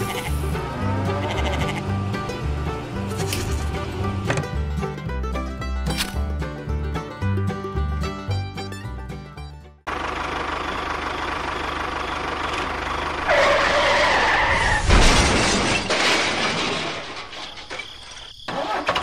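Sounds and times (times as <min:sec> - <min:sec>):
tractor engine running: 0:00.0 - 0:14.4.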